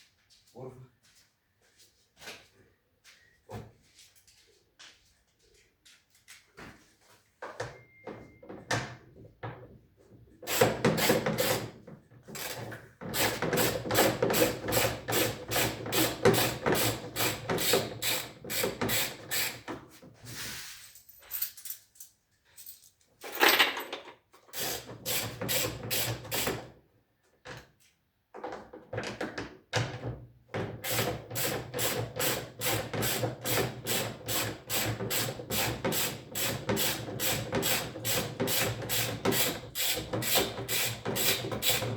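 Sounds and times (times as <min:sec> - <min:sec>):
hand tool strokes: 0:32.6 - 0:41.9.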